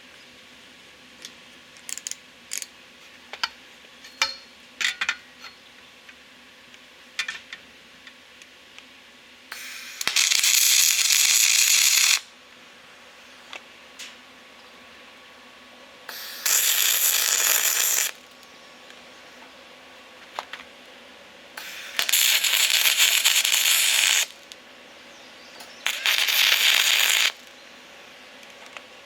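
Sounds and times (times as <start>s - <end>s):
loud steady hiss: 6.2s - 29.0s.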